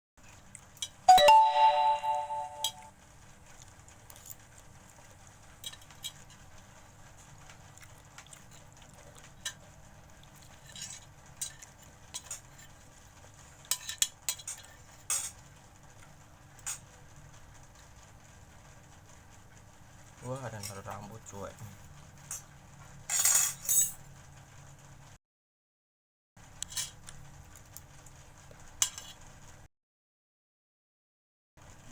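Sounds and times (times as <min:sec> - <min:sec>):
cutlery clinking on a plate: 0:13.7 - 0:15.4.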